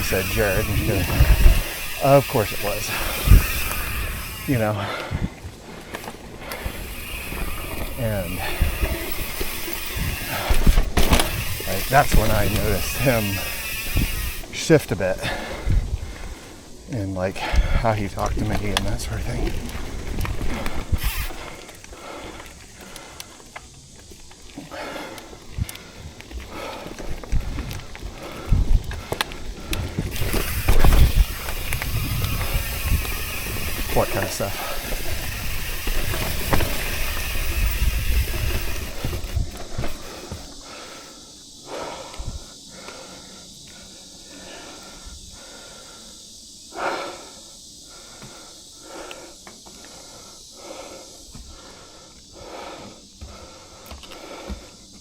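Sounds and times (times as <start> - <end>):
person breathing hard: 0.0 - 14.5, 15.1 - 16.7, 17.4 - 18.0, 20.4 - 55.0
wind buffeting microphone: 0.0 - 21.6, 26.5 - 40.6
bike knocking and rattling: 0.0 - 41.6
steady hiss: 0.0 - 55.0.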